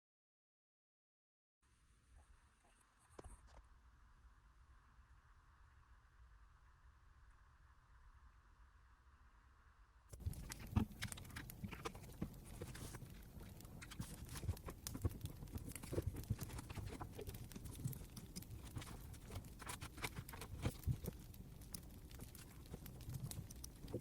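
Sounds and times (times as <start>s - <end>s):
campfire crackling: 10.1s - 24.0s.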